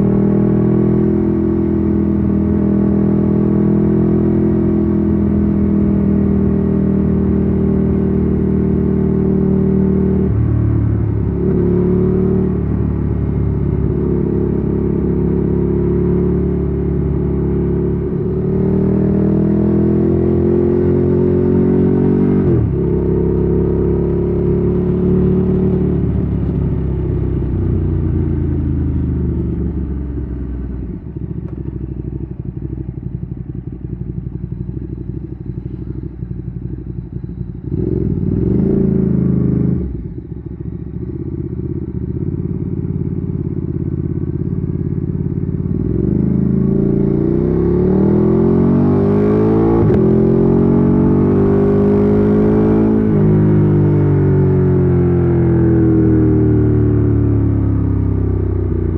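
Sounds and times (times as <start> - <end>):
motorcycle engine accelerating: 0.0 - 58.9
motorcycle engine idling: 26.0 - 38.3, 40.0 - 45.8.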